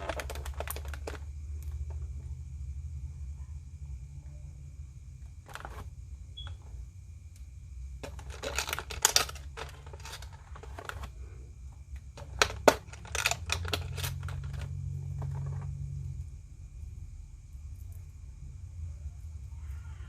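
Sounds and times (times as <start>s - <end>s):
plastic packaging crinkling: 0.0s - 1.3s, 8.0s - 11.2s, 12.1s - 15.6s
steady low hum: 0.0s - 20.0s.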